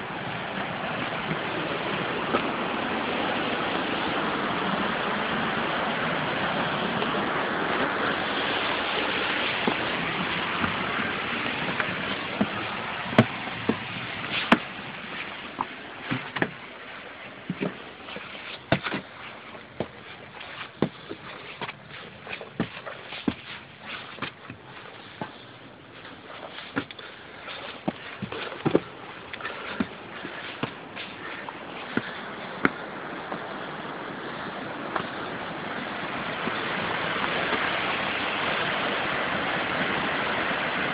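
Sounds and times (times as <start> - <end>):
waterfall rushing: 0.0 - 40.9
sharp knocks and clicks: 15.6 - 16.6.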